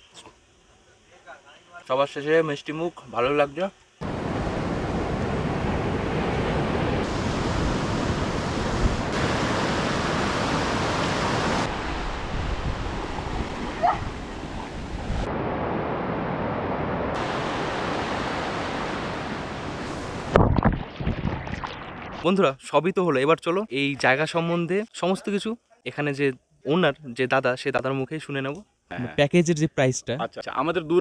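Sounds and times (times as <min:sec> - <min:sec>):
sea surf washing on beach: 0:04.0 - 0:20.4
wind on microphone: 0:04.0 - 0:22.2.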